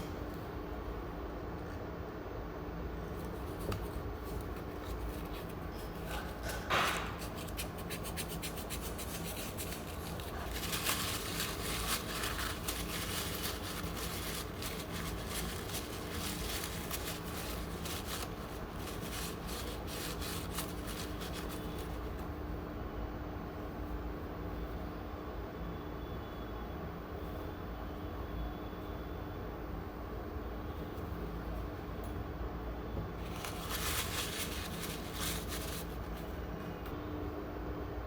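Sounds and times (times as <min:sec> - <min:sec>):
low electrical hum: 0:00.0 - 0:38.0
scratching and rubbing on parts: 0:03.2 - 0:22.2, 0:33.2 - 0:36.4.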